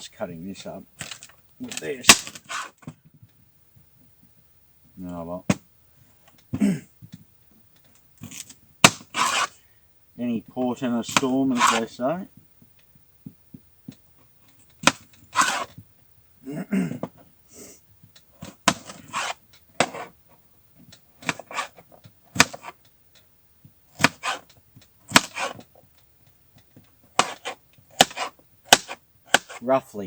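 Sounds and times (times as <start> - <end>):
knife chopping on cutting board: 18.7 - 20.1, 24.0 - 24.4, 25.1 - 25.6, 27.2 - 29.6.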